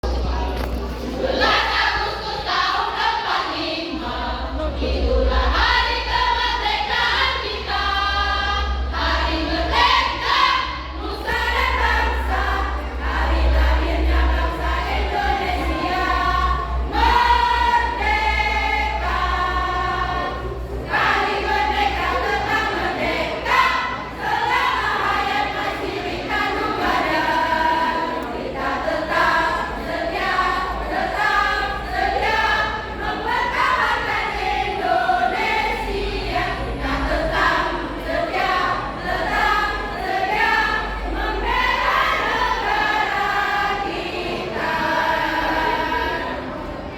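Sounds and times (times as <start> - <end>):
choir singing unaccompanied: 0.0 - 46.9
steady low hum: 0.0 - 46.9.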